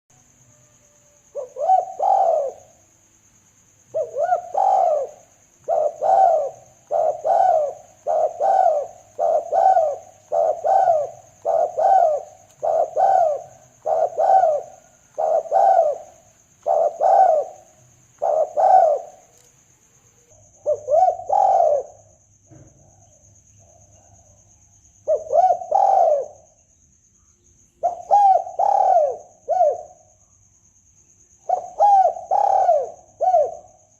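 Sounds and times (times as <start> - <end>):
dove cooing: 0.6 - 2.8, 3.9 - 19.4, 20.6 - 23.0, 25.0 - 26.5, 27.8 - 30.1, 31.4 - 33.8.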